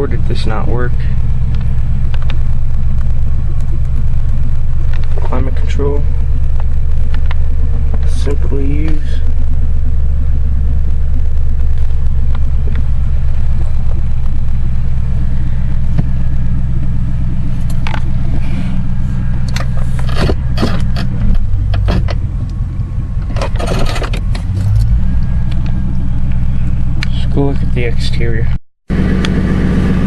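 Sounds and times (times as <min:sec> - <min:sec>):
car engine idling: 0:00.0 - 0:30.0
scrapes and clicks: 0:19.4 - 0:22.2, 0:23.2 - 0:25.8.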